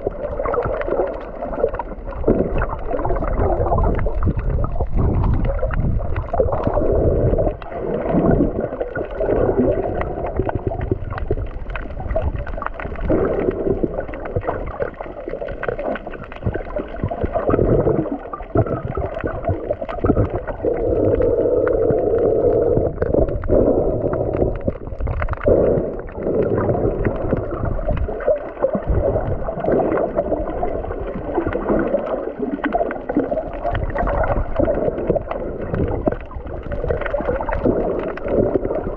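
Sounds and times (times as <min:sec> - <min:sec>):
underwater water sloshing and gurgling: 0:00.0 - 0:38.9.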